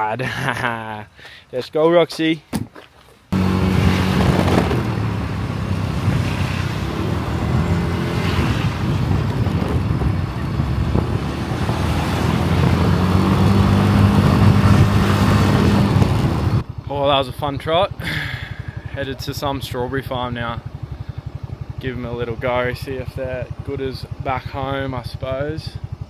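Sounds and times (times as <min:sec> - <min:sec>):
wind and road noise: 0:02.4 - 0:21.8
moped engine running: 0:03.3 - 0:26.0.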